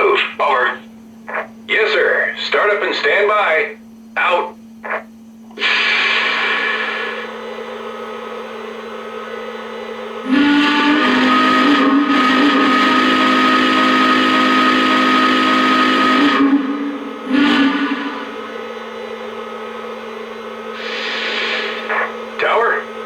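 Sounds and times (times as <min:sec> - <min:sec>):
steady low hum: 0:00.0 - 0:23.0
steam hiss: 0:05.5 - 0:22.1
steam whistle blowing: 0:05.6 - 0:22.2.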